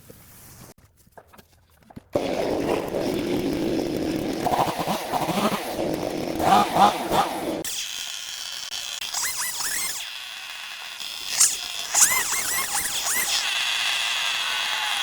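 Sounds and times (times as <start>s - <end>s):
power cutting tool running: 3.2s - 15.0s.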